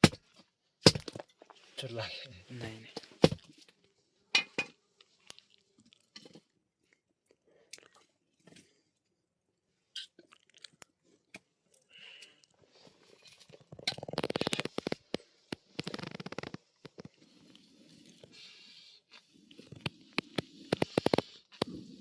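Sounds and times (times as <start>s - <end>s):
crunches and clicks: 13.4s - 17.2s, 19.6s - 21.8s.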